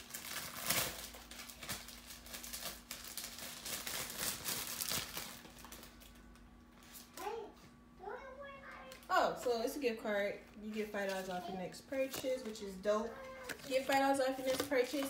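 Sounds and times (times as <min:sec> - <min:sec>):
paper rustling and crinkling: 0:00.0 - 0:06.2, 0:10.7 - 0:15.0.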